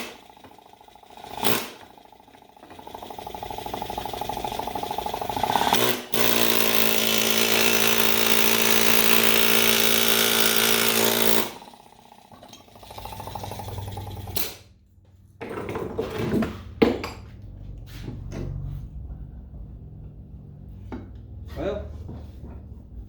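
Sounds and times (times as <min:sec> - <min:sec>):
pneumatic air hammer rattling: 0:00.0 - 0:14.6.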